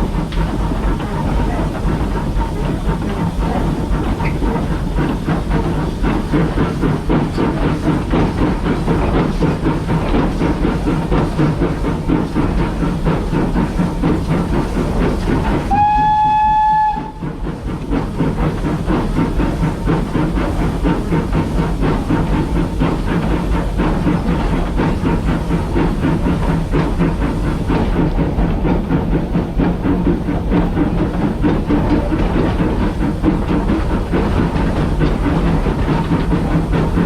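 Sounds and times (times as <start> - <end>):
steam locomotive clattering: 0.0 - 37.0
steam whistle blast: 15.7 - 17.2.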